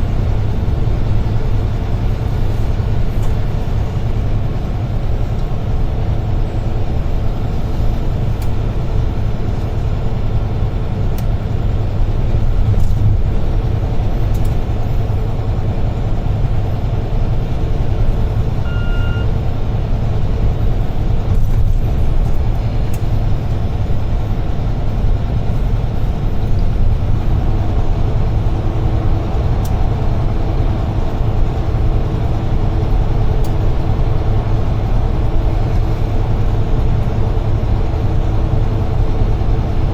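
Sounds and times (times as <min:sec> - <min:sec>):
road noise: 0:00.0 - 0:39.9
truck engine rumble: 0:00.0 - 0:39.9
short electronic beep: 0:18.6 - 0:19.4.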